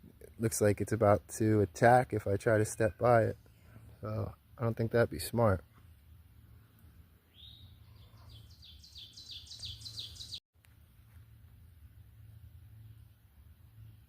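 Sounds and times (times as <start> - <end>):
songbird whistling: 7.3 - 10.4.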